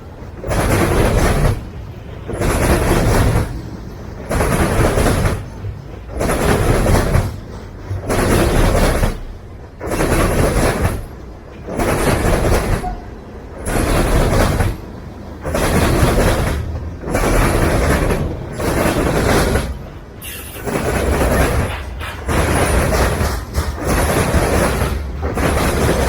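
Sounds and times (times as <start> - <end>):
freight train wheels on rails: 0.0 - 26.0.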